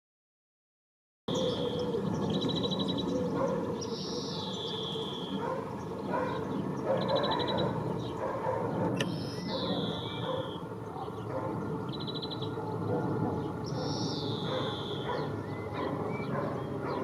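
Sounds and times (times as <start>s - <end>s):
bird whistling song: 1.3s - 5.6s, 6.2s - 8.2s, 9.0s - 10.7s, 11.9s - 12.6s, 13.6s - 17.0s.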